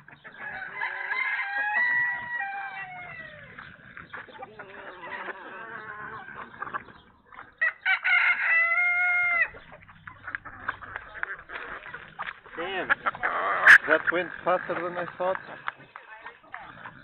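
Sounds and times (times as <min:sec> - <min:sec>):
chicken calls: 0:00.0 - 0:17.0
rooster crowing: 0:00.4 - 0:03.6, 0:07.6 - 0:09.6.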